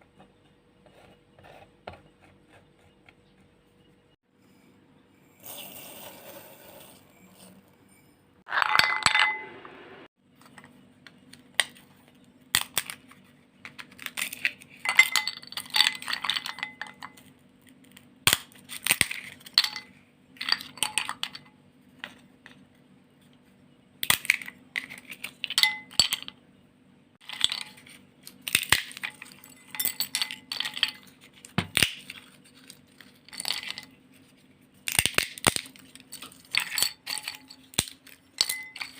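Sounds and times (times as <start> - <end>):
small hard objects clinking: 8.5 - 9.5, 11.6 - 21.5, 27.2 - 38.9.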